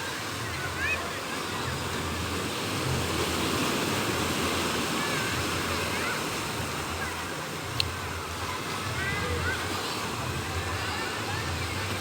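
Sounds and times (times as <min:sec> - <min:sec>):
sea waves breaking on beach: 0:00.0 - 0:12.0
wind: 0:00.0 - 0:12.0.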